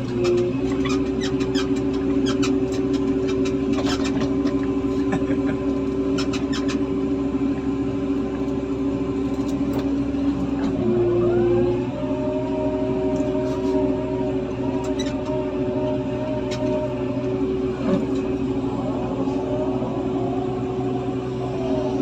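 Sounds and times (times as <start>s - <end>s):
sharp clicks and squeaks: 0.0s - 4.8s, 6.1s - 6.9s, 14.8s - 15.5s, 16.3s - 17.0s
diesel engine humming: 0.0s - 22.0s.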